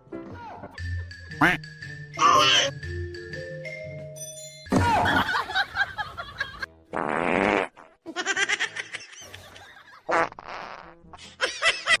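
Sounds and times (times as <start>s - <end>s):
loud farts: 6.9s - 8.0s, 10.1s - 11.1s.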